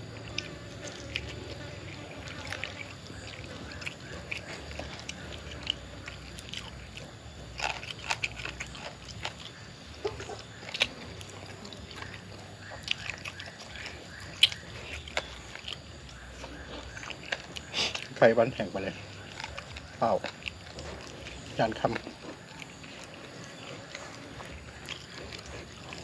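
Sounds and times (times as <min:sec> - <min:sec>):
person chewing meat: 0:00.0 - 0:26.0
wet mouth clicks and smacks: 0:10.6 - 0:18.2.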